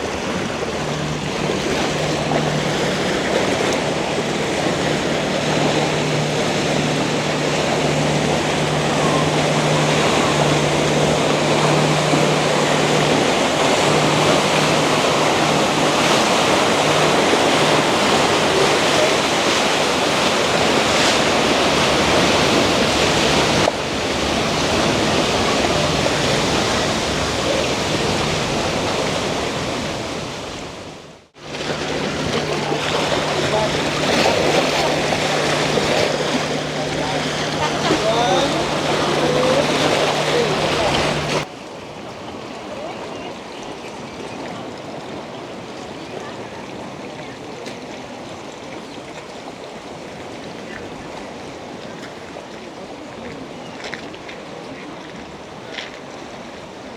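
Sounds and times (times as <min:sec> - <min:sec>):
rushing lake water: 0:00.0 - 0:56.9
wind: 0:00.0 - 0:56.9
low steady hum: 0:31.2 - 0:41.5.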